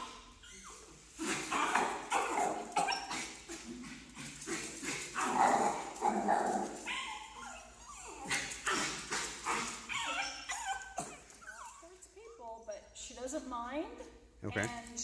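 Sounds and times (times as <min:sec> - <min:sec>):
dog barking and yipping: 0:00.0 - 0:12.0.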